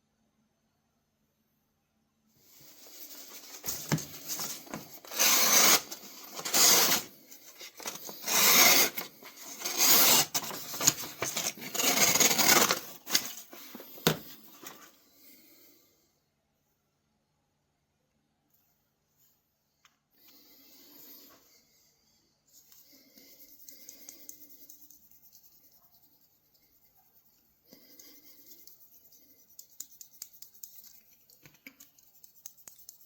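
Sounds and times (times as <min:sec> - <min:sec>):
knife scraping on sharpener: 0:03.3 - 0:13.5.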